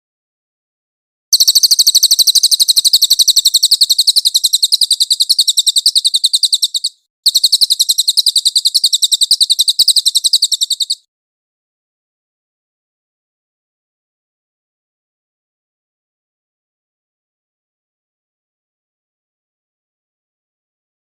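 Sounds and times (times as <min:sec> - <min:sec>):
songbird high rapid trill: 0:01.3 - 0:11.1.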